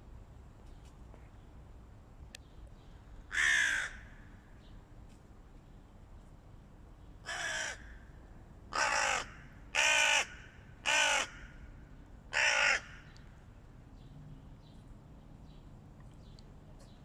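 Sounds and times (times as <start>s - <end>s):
crows cawing: 3.3s - 4.4s, 7.2s - 8.1s, 8.7s - 11.7s, 12.3s - 13.2s.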